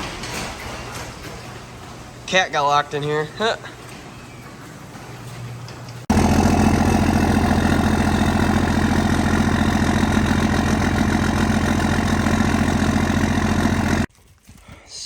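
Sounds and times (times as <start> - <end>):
truck engine idling: 6.0 - 14.1.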